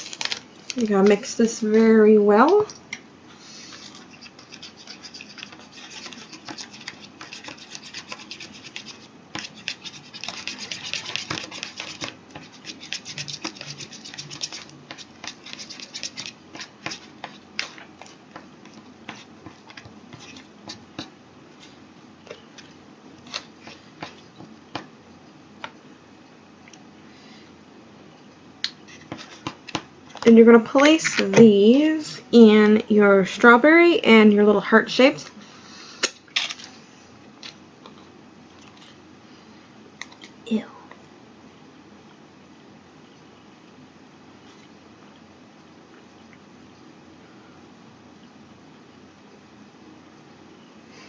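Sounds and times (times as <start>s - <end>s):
plastic spoon scraping tray: 3.8s - 18.2s.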